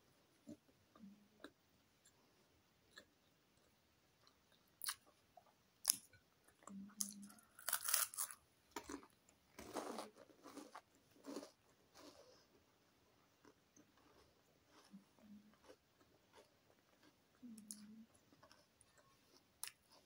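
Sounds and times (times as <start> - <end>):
crunching and chewing of crisp snack: 2.9 - 5.2, 5.8 - 12.7, 13.4 - 20.0.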